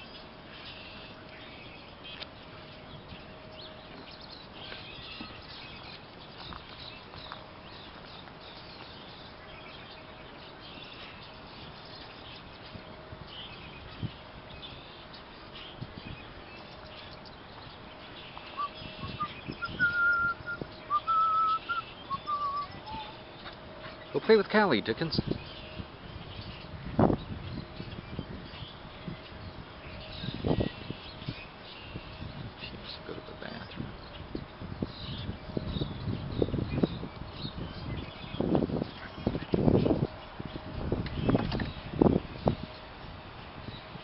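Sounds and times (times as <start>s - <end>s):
songbirds chirping: 0.0s - 44.0s
short high whistled notes: 18.6s - 23.2s.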